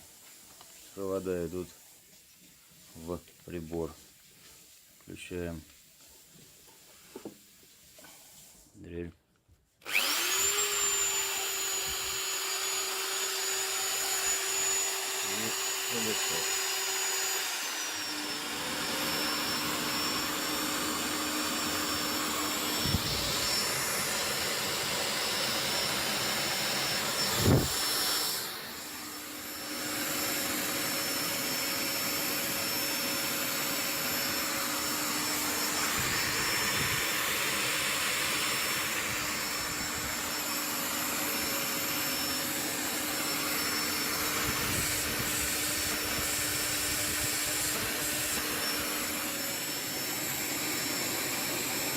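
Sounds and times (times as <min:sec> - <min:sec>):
electric drill running: 0:09.8 - 0:51.9
vacuum cleaner running: 0:09.8 - 0:51.9.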